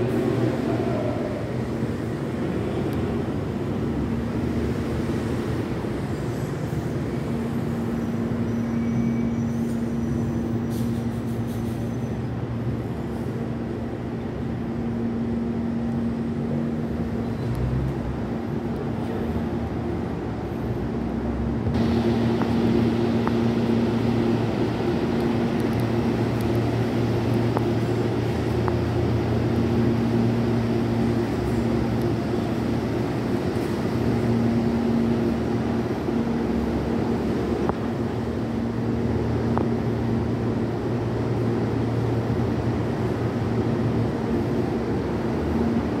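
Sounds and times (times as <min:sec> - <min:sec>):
electric train motor hum: 0:21.8 - 0:46.0.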